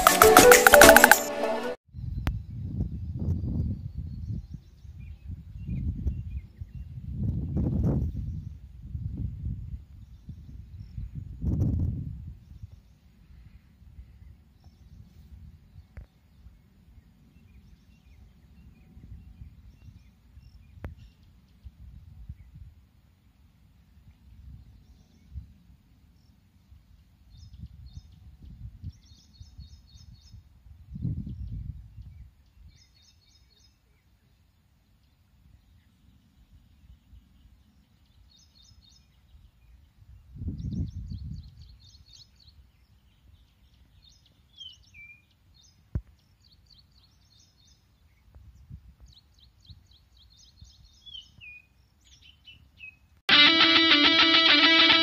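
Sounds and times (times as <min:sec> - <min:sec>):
loud guitar music: 0:00.0 - 0:01.8, 0:53.3 - 0:55.0
small birds trilling: 0:49.1 - 0:55.0.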